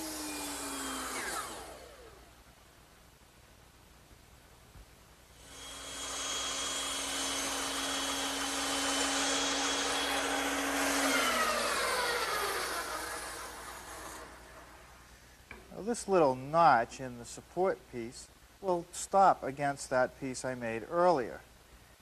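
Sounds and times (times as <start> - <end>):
electric power tool motor whining: 0.0 - 2.3, 5.4 - 14.8.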